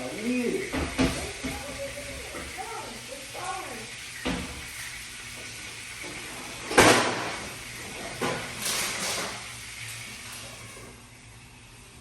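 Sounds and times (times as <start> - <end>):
sharp kitchen knocks: 0.7 - 1.8, 4.2 - 4.6, 6.7 - 7.5.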